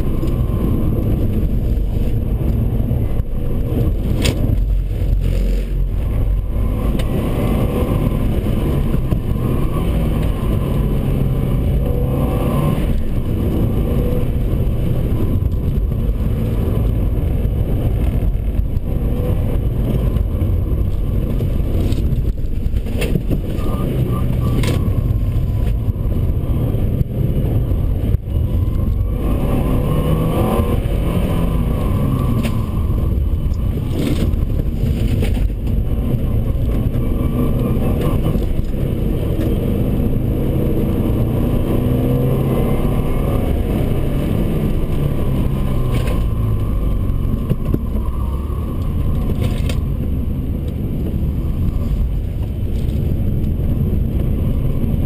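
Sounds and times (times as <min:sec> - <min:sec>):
car engine revving: 0:00.0 - 0:55.0
road rumble: 0:00.0 - 0:55.0.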